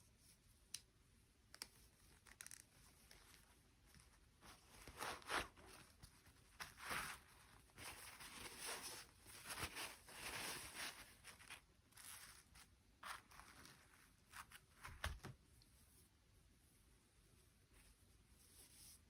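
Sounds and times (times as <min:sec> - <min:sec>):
packaging rustling and crinkling: 0:04.5 - 0:15.2.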